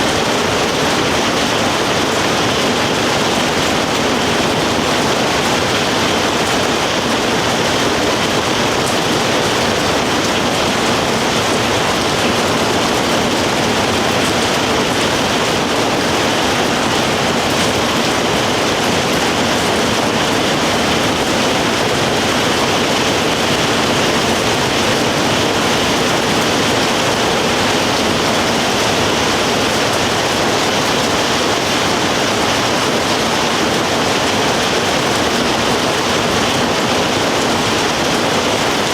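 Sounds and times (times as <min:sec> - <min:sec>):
rain pouring: 0:00.0 - 0:38.9.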